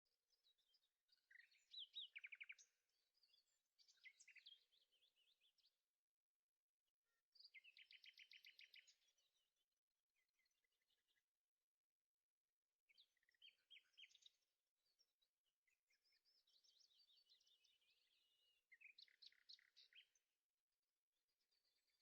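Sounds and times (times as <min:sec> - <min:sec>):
faint birdsong chirps and trill: 0:00.0 - 0:22.0.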